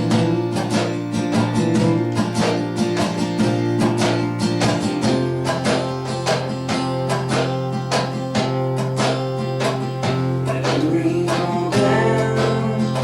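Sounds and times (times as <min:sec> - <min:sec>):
held bass notes: 0:00.0 - 0:06.1
strummed acoustic guitar: 0:00.0 - 0:13.0.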